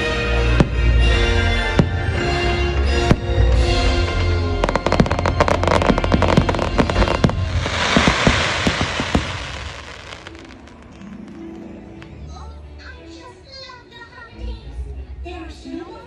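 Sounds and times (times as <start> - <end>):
crackling hiss of fireworks: 1.8 - 12.1
fireworks bangs and pops: 1.8 - 12.1
show music: 2.2 - 12.2.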